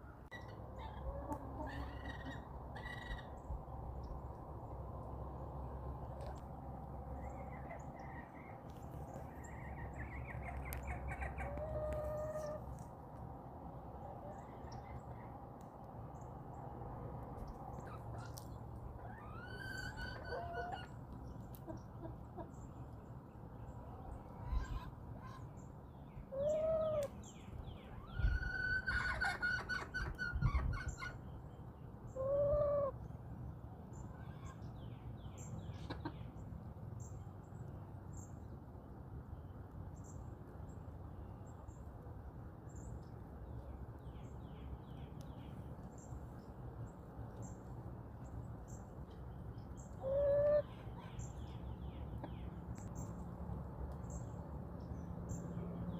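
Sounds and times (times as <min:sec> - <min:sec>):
low background noise: 0:00.0 - 0:55.9
songbirds chirping: 0:00.0 - 0:55.9
hens calling: 0:00.3 - 0:03.4, 0:17.9 - 0:21.0, 0:49.9 - 0:51.0.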